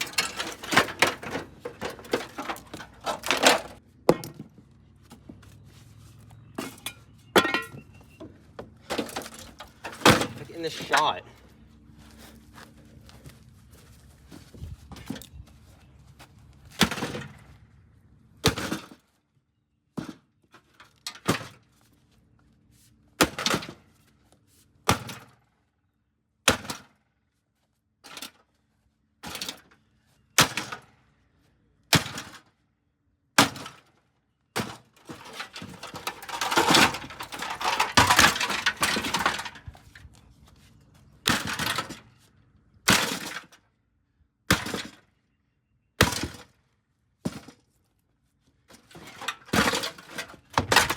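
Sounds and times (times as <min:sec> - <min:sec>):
crunching and breaking: 0:35.1 - 0:40.1
heavy blows smashing microwave: 0:35.5 - 0:39.6.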